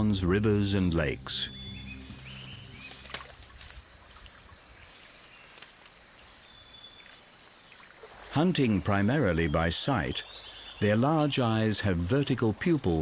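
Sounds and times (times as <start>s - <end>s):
low sustained chord: 0.0s - 5.0s
water trickling: 0.0s - 5.8s
high insect trill: 0.0s - 13.0s.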